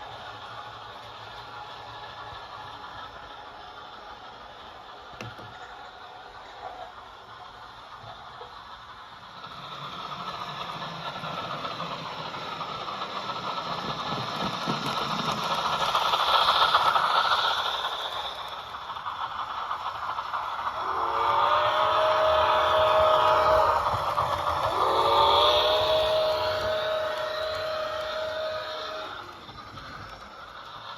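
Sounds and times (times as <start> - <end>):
steam hiss from small speaker: 0.0 - 30.9
chime steam whistle: 20.8 - 29.4.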